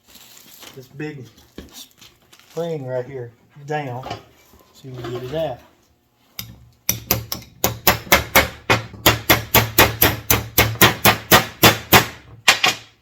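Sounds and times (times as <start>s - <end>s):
hammer striking metal: 6.4s - 12.9s.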